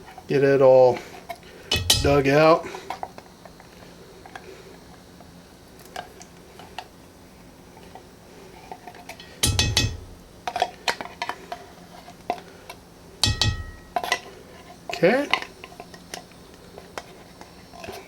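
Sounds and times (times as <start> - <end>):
heavy metallic clanks: 1.7 - 2.5, 9.2 - 10.3, 13.2 - 14.2.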